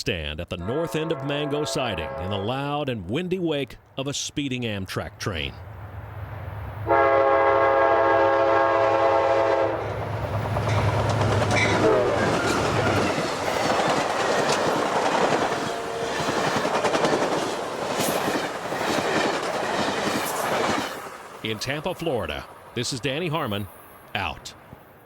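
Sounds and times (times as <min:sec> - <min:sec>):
train horn: 0:00.6 - 0:02.5, 0:06.8 - 0:10.0, 0:11.6 - 0:12.9, 0:15.6 - 0:16.4
train engine rumble: 0:05.0 - 0:25.0
windy rushing of train: 0:05.6 - 0:25.0
wheels clattering over rail joints: 0:09.9 - 0:21.5.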